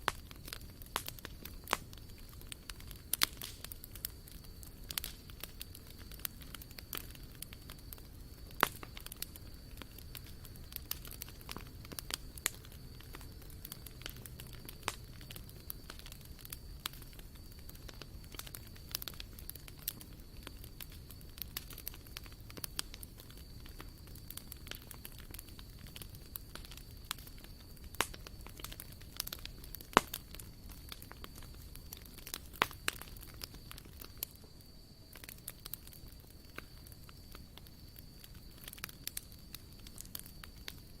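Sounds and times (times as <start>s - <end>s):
campfire crackling and popping: 0.0s - 41.0s.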